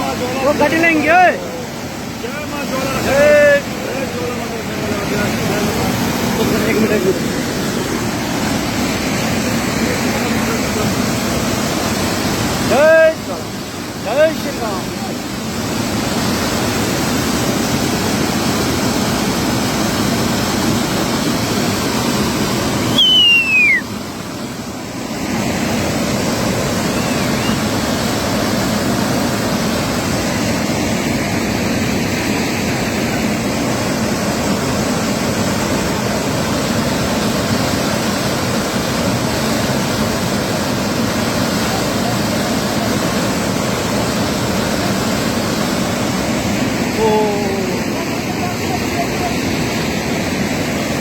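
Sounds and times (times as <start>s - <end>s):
floodwater rushing in a river: 0.0s - 51.0s
high falling whistle: 22.9s - 23.9s, 26.9s - 27.6s.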